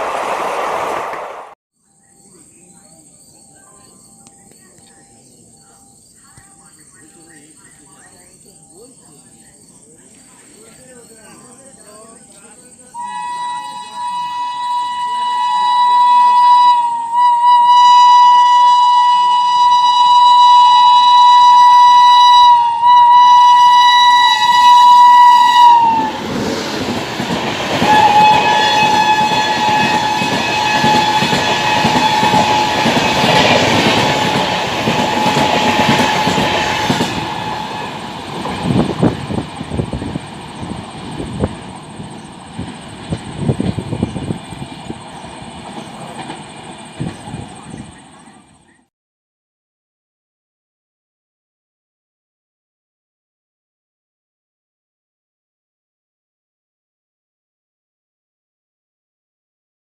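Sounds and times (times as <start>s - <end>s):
train horn blaring: 13.0s - 26.3s, 27.7s - 39.4s.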